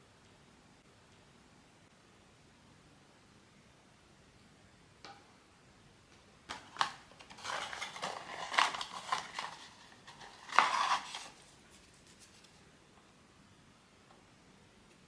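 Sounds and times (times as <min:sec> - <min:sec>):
plastic packaging clicks and rustling: 0:06.5 - 0:12.6.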